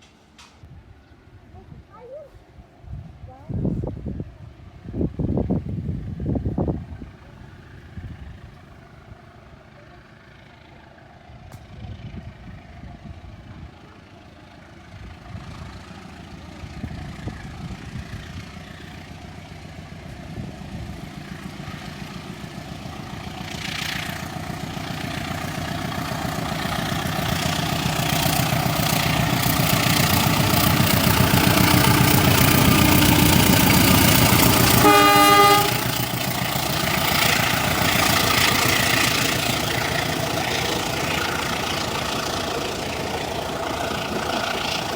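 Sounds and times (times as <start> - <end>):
diesel locomotive engine: 0.0 - 44.9
train wheels clattering on rails: 14.7 - 44.9.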